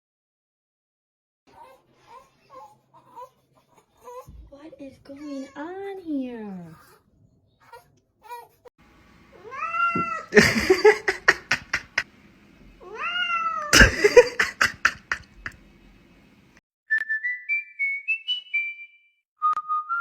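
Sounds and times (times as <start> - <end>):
cat meowing: 9.4 - 10.4, 12.8 - 13.9
whistled notes stepping upward: 16.9 - 20.0.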